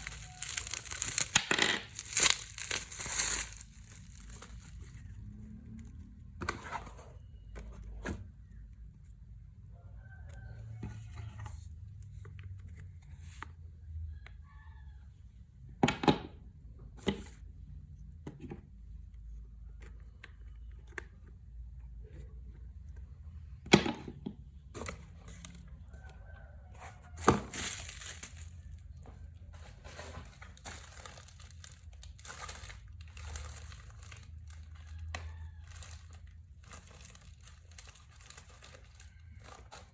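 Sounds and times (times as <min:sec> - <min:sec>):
packaging crinkling and tearing: 0:00.0 - 0:05.2, 0:27.5 - 0:28.9, 0:29.8 - 0:39.9
packaging rustling: 0:00.0 - 0:05.2, 0:27.4 - 0:29.0, 0:29.6 - 0:39.9.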